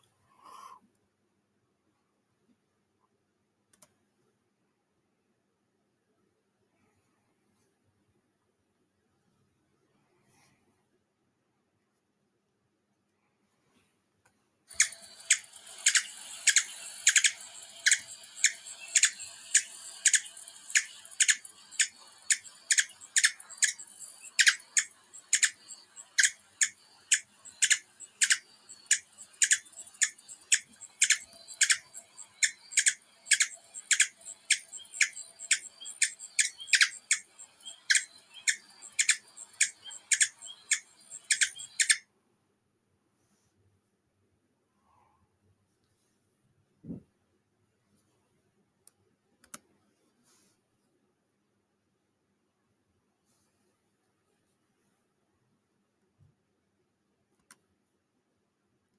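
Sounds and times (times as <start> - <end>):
recording hiss: 14.7 - 42.0.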